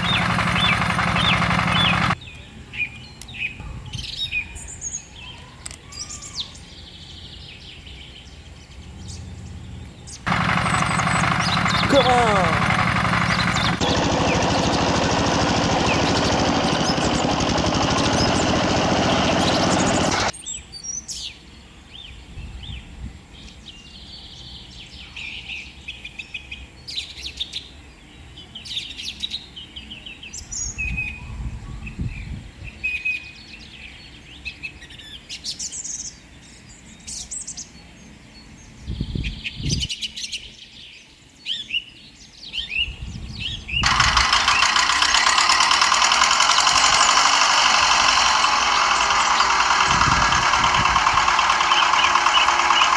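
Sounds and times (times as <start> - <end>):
small tractor engine running: 0.0 - 2.2, 10.3 - 20.4, 43.8 - 52.9
birds chirping: 0.0 - 20.4, 43.5 - 52.9.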